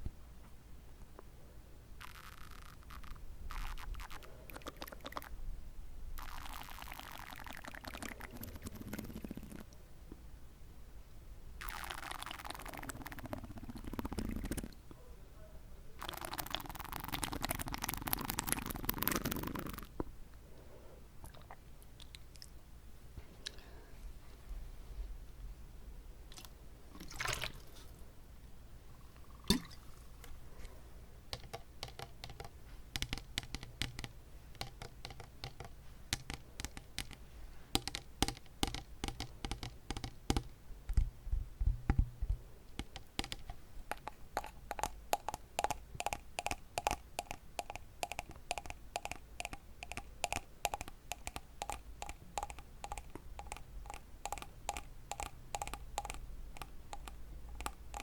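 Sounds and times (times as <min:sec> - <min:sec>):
lip smacks: 0:02.0 - 0:05.3
tongue clicks: 0:02.0 - 0:05.3, 0:43.9 - 0:58.0.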